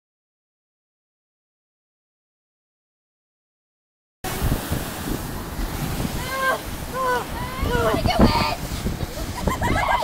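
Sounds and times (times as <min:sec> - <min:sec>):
churning water rushing: 0:04.2 - 0:10.0
wind buffeting microphone: 0:04.2 - 0:10.0.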